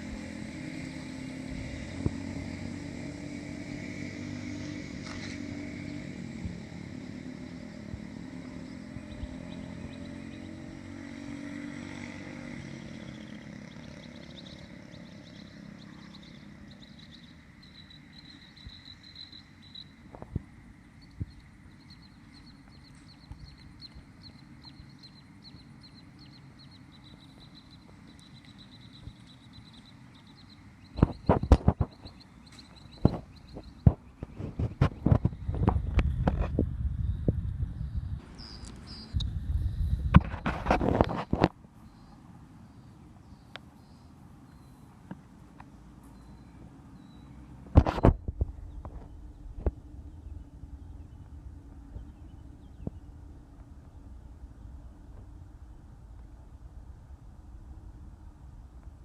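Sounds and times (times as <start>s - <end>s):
faint high chirping: 12.5s - 34.2s, 37.0s - 39.3s, 41.8s - 45.0s, 46.0s - 53.2s.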